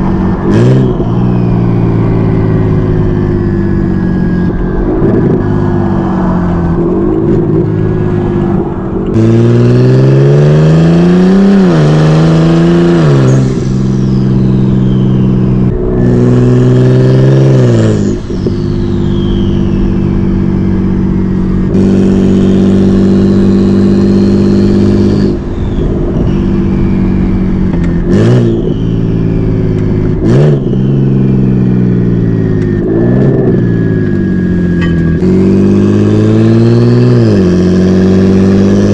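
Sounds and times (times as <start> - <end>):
car engine revving: 0.0 - 38.9
turbo whistle: 13.0 - 16.2, 17.3 - 31.5.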